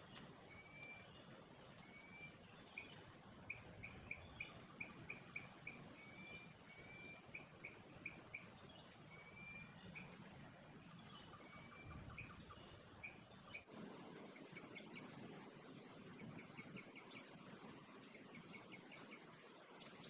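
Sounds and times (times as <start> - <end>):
bird chirping and whistling: 14.8 - 15.2, 17.0 - 17.6.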